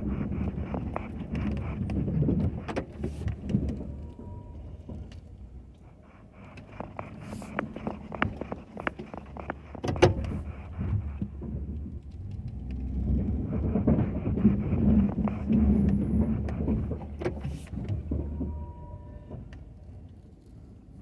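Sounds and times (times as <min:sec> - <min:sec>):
sharp clicks and knocks: 0:06.4 - 0:11.3.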